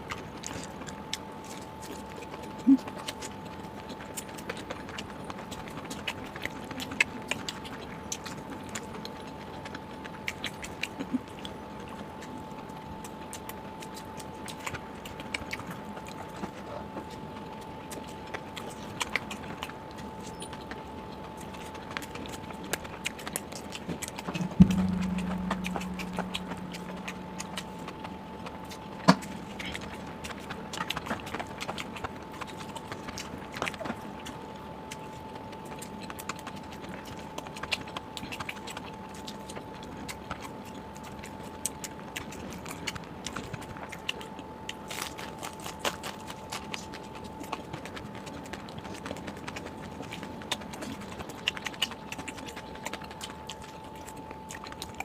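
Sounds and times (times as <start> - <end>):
chewing and utensil clicks: 0.0 - 55.0
loud knock with low hum: 24.4 - 27.7
faint steady tone: 24.4 - 29.0.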